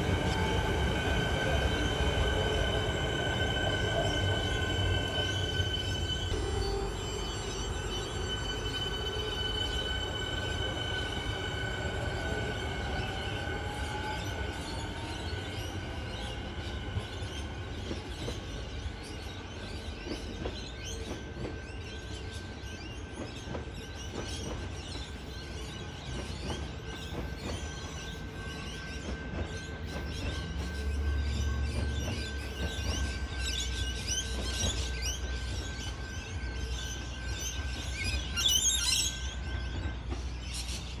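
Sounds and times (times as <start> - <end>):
high-pitched whine: 0.0 - 17.8
train low rumble: 0.0 - 41.0.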